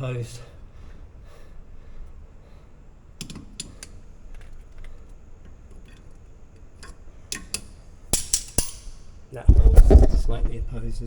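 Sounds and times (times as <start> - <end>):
pliers clicking on metal: 3.2 - 9.1.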